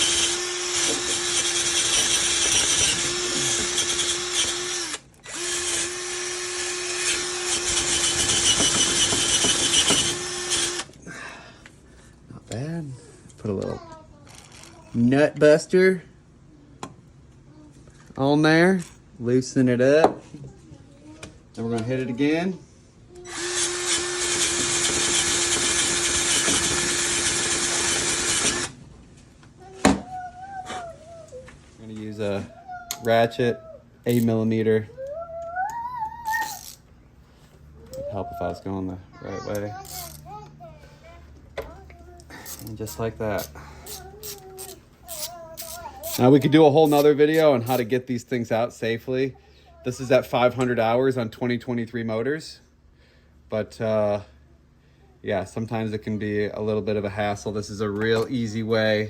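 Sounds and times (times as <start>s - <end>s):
power drill motor whine: 0.0s - 11.0s, 23.3s - 28.8s
wire brush scratching metal: 42.4s - 47.9s.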